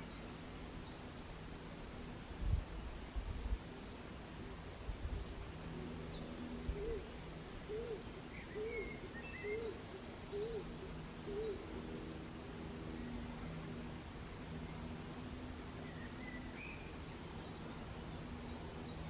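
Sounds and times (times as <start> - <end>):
bird low hooting call: 6.6 - 12.0.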